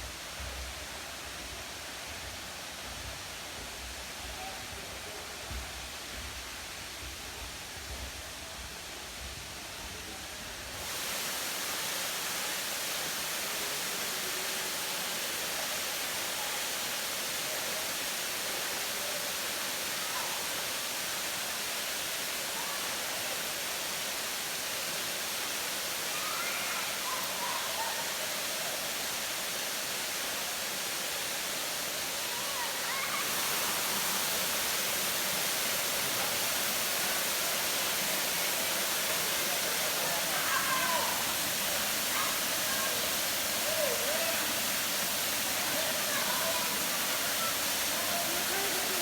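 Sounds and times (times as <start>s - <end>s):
waterfall rushing: 10.5s - 49.0s.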